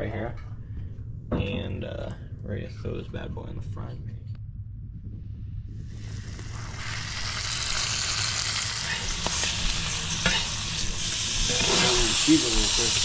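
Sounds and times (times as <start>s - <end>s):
fish sizzling in a pan: 5.9s - 13.0s.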